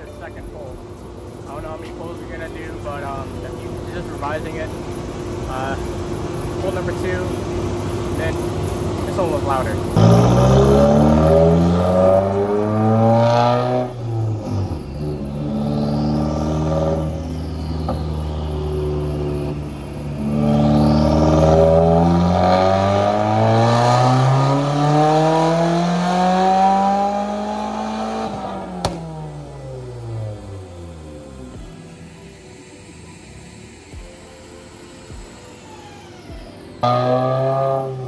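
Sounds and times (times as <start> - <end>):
car engine revving at full throttle: 0.0 - 38.0
exhaust pop: 28.2 - 29.3.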